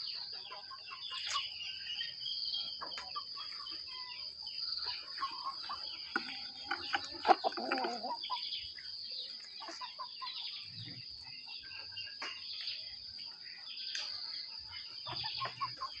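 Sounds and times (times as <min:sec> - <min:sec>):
hen clucking: 0:02.8 - 0:08.6, 0:14.8 - 0:16.0.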